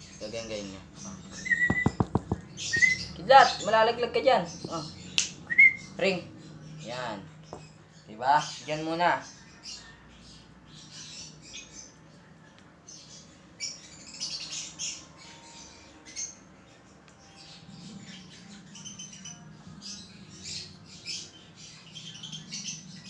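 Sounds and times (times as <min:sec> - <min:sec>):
baby bird chirping and squeaking: 0:00.8 - 0:07.8.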